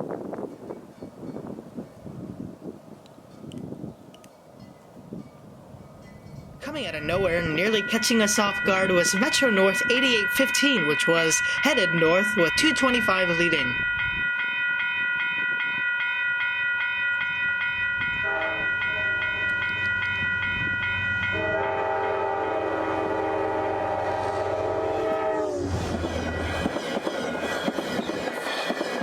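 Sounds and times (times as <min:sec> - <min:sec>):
locomotive air horn blasts: 0:18.2 - 0:19.5, 0:21.3 - 0:26.6
train wheels on rails: 0:23.6 - 0:29.0.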